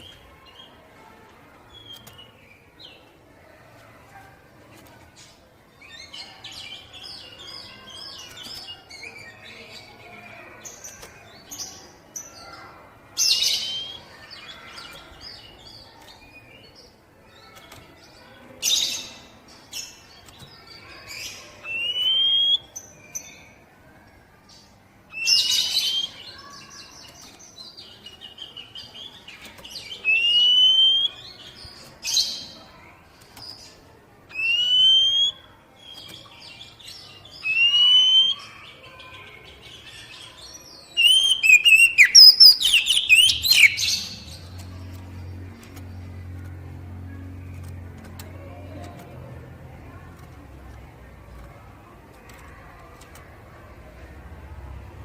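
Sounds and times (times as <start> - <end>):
songbird chattering and whistling: 13.2 - 15.0, 21.6 - 22.7, 25.1 - 26.4, 29.8 - 31.5, 34.3 - 36.1, 37.4 - 38.7, 40.8 - 44.5.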